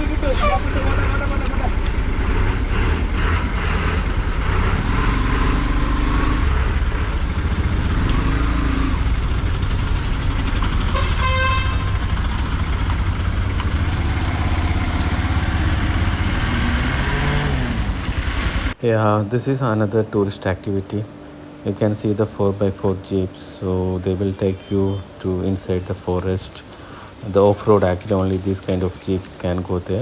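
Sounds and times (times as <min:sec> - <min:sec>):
motorcycle engine and road noise: 0:00.0 - 0:18.8
vehicle horn toot: 0:10.9 - 0:12.3.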